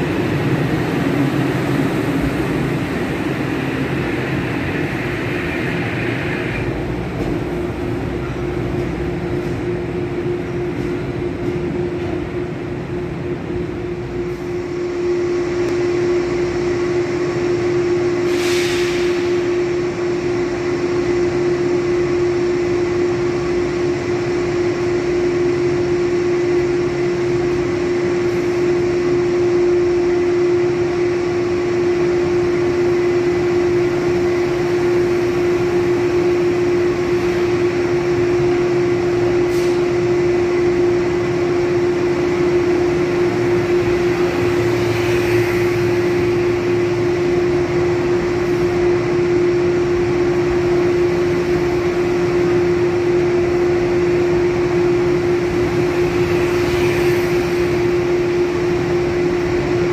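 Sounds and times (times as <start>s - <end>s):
train cars rumbling: 0.0s - 14.5s, 33.8s - 59.9s
steady humming tone: 0.0s - 59.9s.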